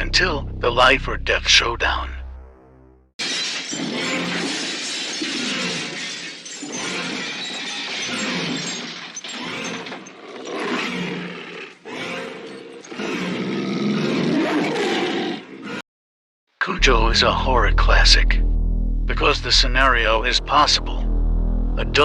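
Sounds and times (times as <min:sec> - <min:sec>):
dog snarling and growling: 0:09.4 - 0:15.8.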